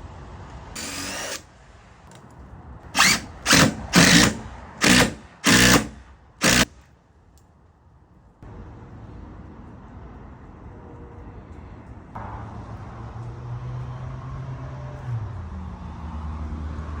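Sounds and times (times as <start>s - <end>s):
motor humming: 3.0s - 6.7s.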